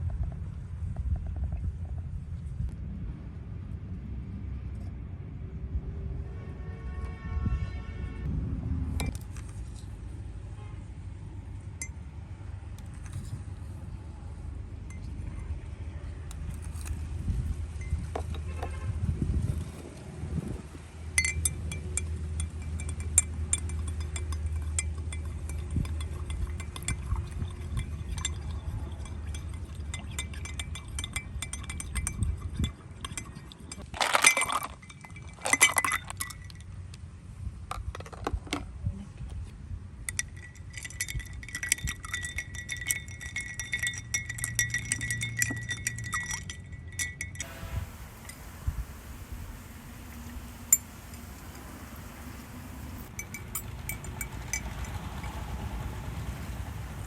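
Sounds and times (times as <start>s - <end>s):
spoon clattering: 21.2s - 36.6s, 40.2s - 54.7s
spoon clinking against glass: 21.2s - 36.6s, 40.2s - 54.6s.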